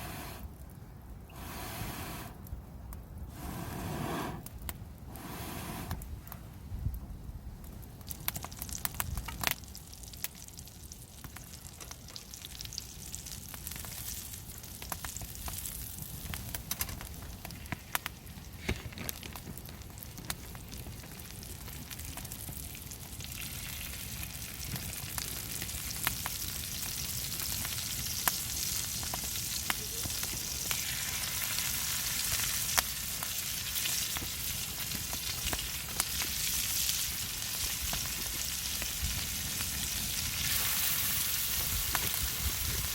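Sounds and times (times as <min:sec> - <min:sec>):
frying pops: 0:07.6 - 0:42.9
oysters sizzling in a pan: 0:21.9 - 0:42.9.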